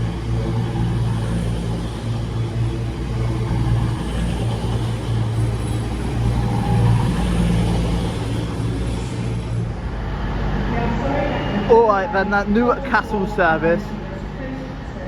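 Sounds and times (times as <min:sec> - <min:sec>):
train diesel engines humming: 0:00.0 - 0:15.0.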